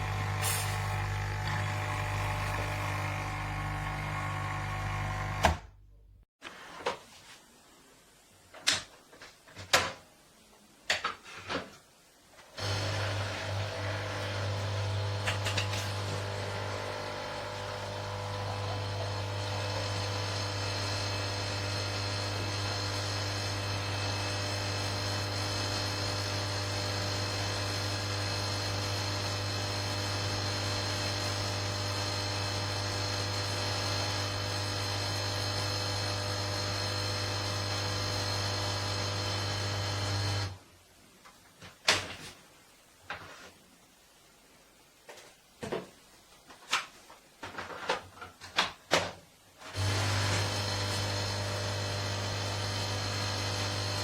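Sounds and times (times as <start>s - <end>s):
coffee machine pump humming: 0.0s - 5.6s, 12.6s - 40.5s, 49.8s - 54.0s.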